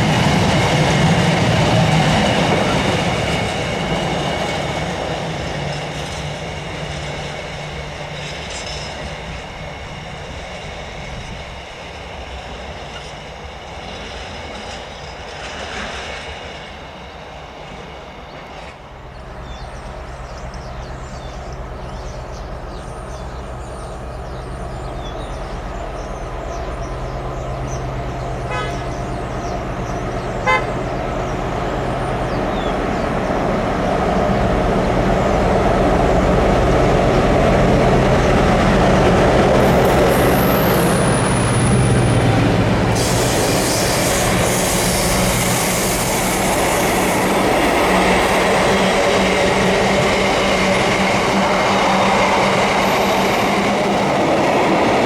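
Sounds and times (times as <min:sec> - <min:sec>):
freight train passing: 0:00.0 - 0:55.0
diesel locomotive engine running: 0:17.8 - 0:55.0.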